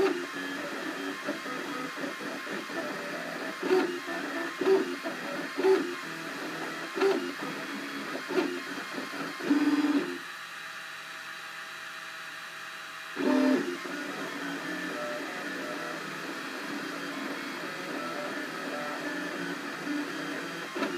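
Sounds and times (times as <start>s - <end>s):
stepper motors buzzing: 0.0s - 10.2s, 13.2s - 20.9s.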